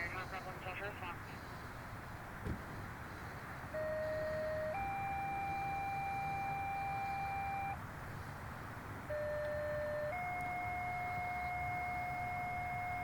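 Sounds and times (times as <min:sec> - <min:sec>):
two-tone paging tones over radio: 0:03.8 - 0:07.8, 0:09.1 - 0:13.0.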